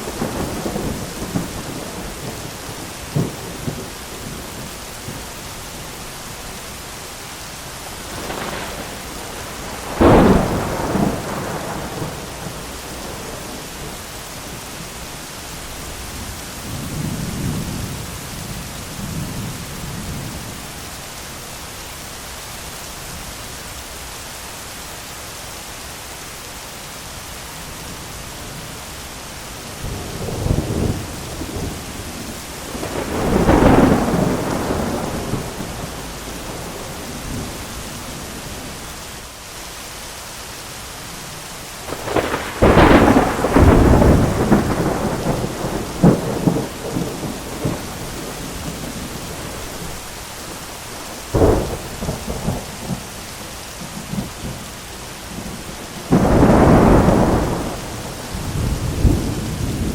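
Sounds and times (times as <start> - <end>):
thunder crack and rumble: 0.0 - 5.3, 8.0 - 14.0, 29.8 - 37.6, 41.9 - 50.0, 51.0 - 53.2, 55.3 - 59.9
heavy rain: 0.0 - 59.9.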